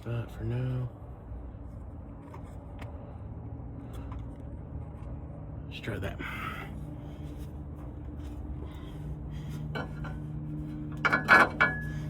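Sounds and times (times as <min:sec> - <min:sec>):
steady low hum: 0:00.0 - 0:12.0
metal tools clinking: 0:11.0 - 0:12.0.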